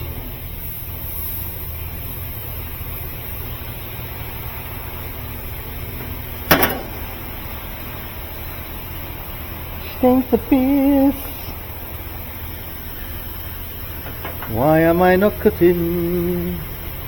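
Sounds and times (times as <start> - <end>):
low mechanical hum: 0.0 - 17.0
sharp click: 6.5 - 7.4.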